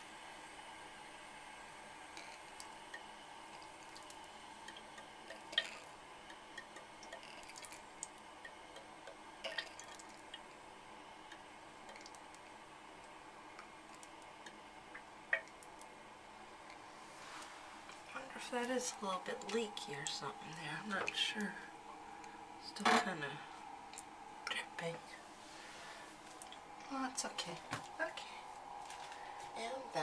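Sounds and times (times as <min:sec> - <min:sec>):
water dripping: 0:02.2 - 0:10.6, 0:11.2 - 0:16.0, 0:18.0 - 0:22.8, 0:26.2 - 0:26.7
soft hiss: 0:16.6 - 0:22.6.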